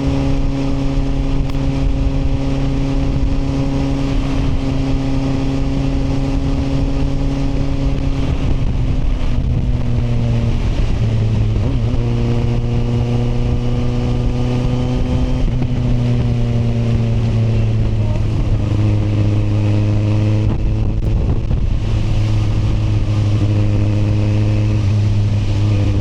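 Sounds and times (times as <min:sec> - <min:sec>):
motorcycle engine running: 0:00.0 - 0:26.0
wind and road noise: 0:00.0 - 0:26.0.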